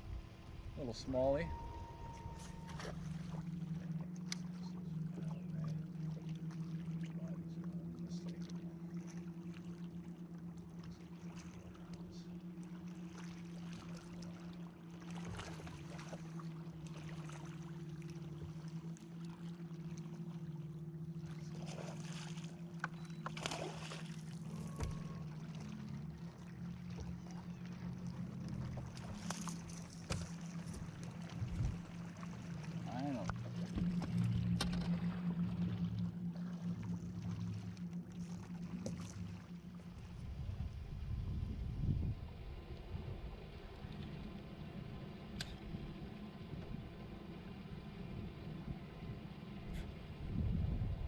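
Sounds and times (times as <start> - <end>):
electric boat motor humming: 0.0 - 51.0
knocks and splashes: 23.2 - 25.2, 28.8 - 32.0.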